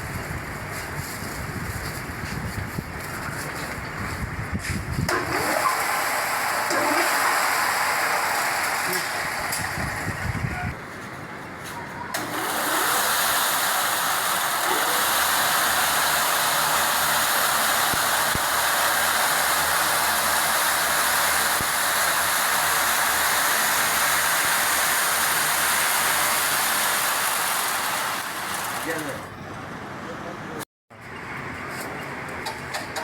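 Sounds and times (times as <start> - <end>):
factory machinery whirring: 5.1 - 10.8, 12.1 - 29.5.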